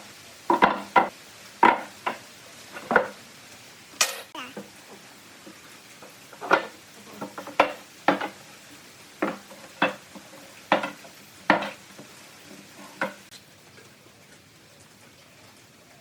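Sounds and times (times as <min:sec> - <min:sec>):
knocks and scrapes on wooden workbench: 0:09.2 - 0:12.1.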